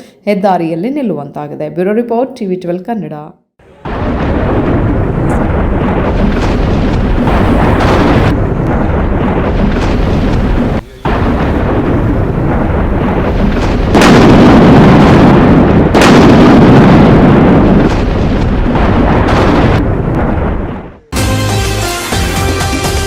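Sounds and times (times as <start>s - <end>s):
thunder rumbling: 3.6s - 21.2s.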